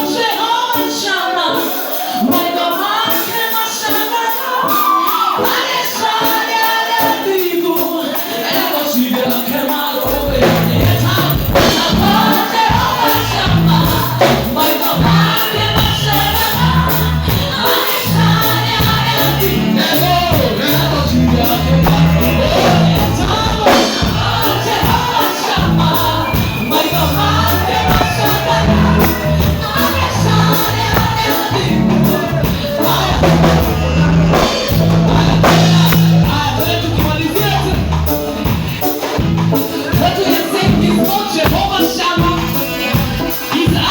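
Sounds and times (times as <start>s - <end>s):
gospel group singing: 0.0s - 43.9s
tambourine: 6.3s - 13.4s
bass line: 10.1s - 39.6s.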